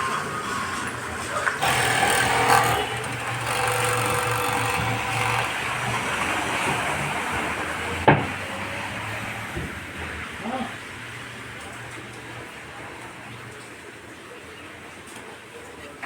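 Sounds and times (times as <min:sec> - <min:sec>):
sewing machine running: 0:01.6 - 0:06.7.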